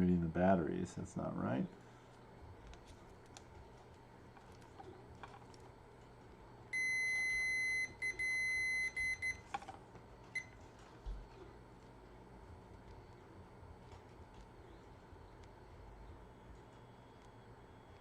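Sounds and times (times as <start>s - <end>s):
multimeter continuity beeps: 6.7s - 9.5s, 10.3s - 10.6s.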